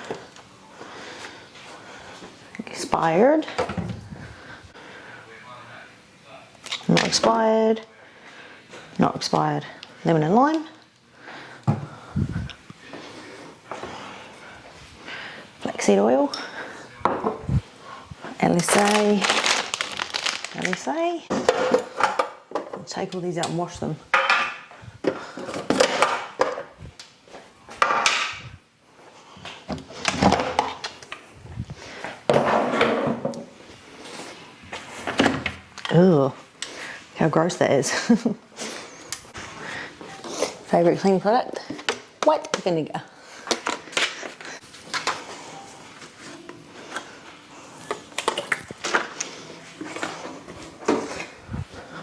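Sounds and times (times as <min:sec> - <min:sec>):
fridge shelves and containers clattering: 0:18.5 - 0:22.9.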